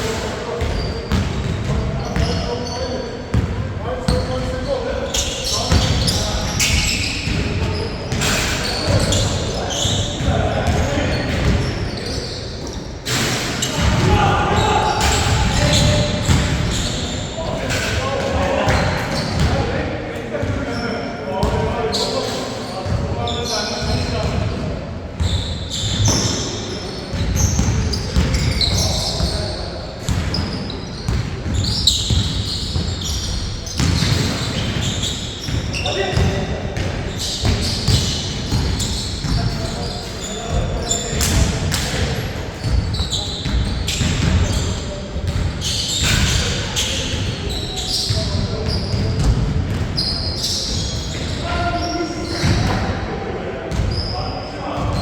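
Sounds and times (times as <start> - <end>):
sneakers squeaking on floor: 0.0 - 55.0
shoes squeaking: 4.0 - 13.0, 25.2 - 36.4
basketball bouncing on court floor: 15.0 - 17.0, 27.1 - 29.4, 30.0 - 39.8, 40.5 - 46.5, 48.0 - 50.0.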